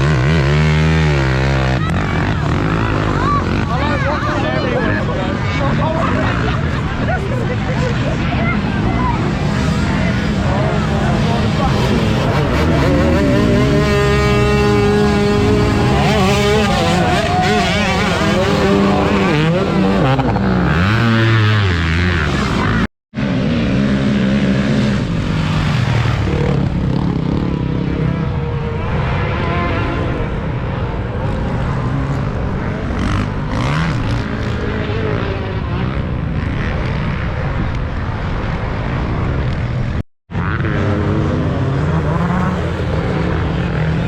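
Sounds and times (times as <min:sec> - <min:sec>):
motocross bikes revving: 0:00.0 - 0:44.0.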